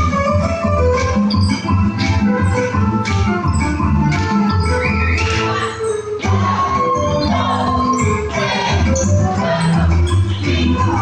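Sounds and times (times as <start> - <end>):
band playing: 0.0 - 7.6
bass line: 0.0 - 11.0
held keyboard notes: 0.0 - 11.0
percussion: 0.0 - 11.0.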